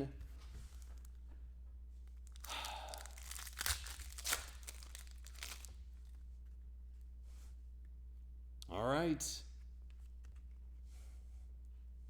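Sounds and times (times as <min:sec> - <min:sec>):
wrapper tearing and crinkling: 0:02.2 - 0:05.7.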